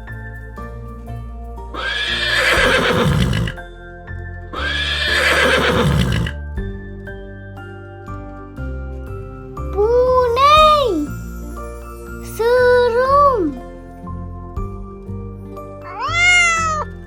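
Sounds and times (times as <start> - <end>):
gentle children's music: 0.0 - 17.0
horse neighing: 1.8 - 3.6, 4.6 - 6.4, 15.9 - 16.9.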